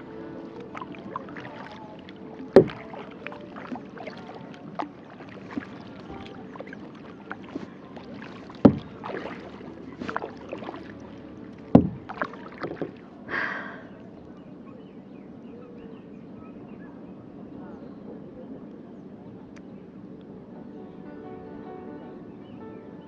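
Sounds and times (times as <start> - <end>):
paddle knocking against kayak: 0.0 - 13.1
wash of water: 0.0 - 14.1
paddle splashing in water: 0.0 - 14.3
water swish: 0.0 - 15.2.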